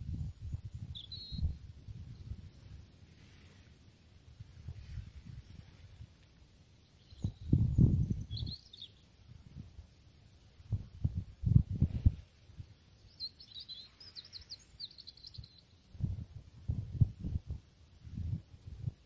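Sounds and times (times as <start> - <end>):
small bird twittering: 0.2 - 2.6, 6.8 - 9.1, 13.0 - 15.8.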